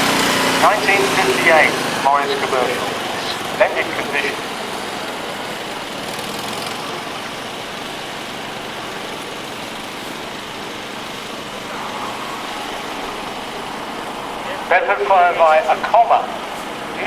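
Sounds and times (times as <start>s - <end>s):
vehicle engine passing: 0.0s - 17.0s.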